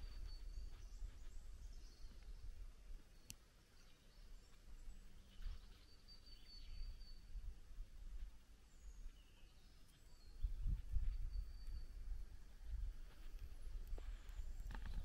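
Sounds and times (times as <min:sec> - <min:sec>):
faint high bird chirps: 0:00.0 - 0:07.5, 0:08.6 - 0:12.8.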